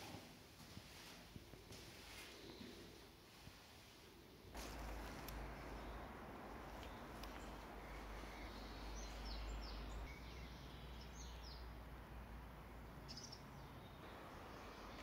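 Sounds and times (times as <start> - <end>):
background hiss and rumble: 0.0 - 15.0
high falling bird chirps: 4.5 - 11.7, 13.0 - 15.0.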